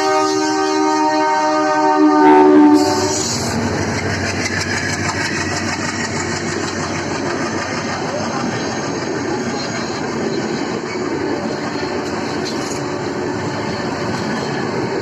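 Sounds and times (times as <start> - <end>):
locomotive horn: 0.0 - 3.6
train rumble and wheel clatter: 0.0 - 15.0.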